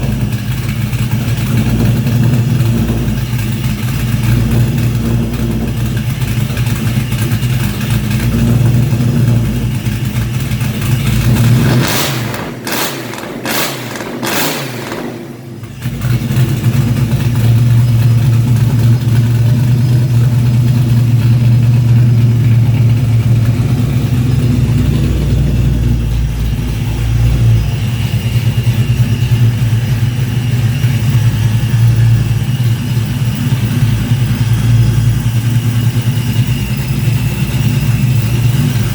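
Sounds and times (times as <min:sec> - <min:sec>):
engine running steadily: 0:00.0 - 0:38.9
loud rushing bursts: 0:11.4 - 0:19.4.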